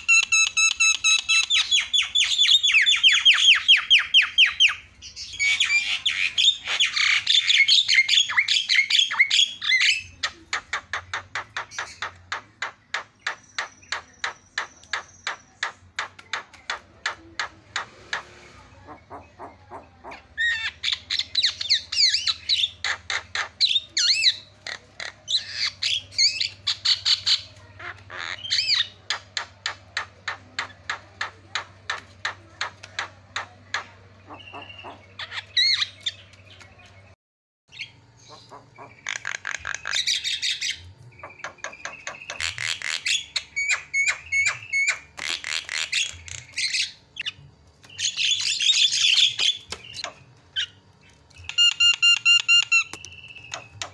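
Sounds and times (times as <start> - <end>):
myna chattering: 9.6 - 36.3.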